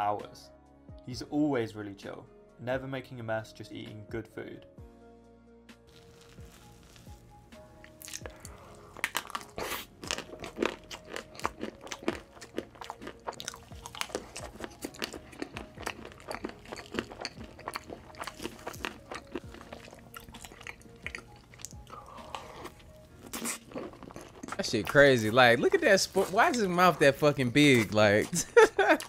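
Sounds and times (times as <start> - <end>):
soft background music: 0.0 - 29.0
mouth clicks and crunches: 5.9 - 7.2, 7.8 - 25.2
person chewing: 5.9 - 25.0.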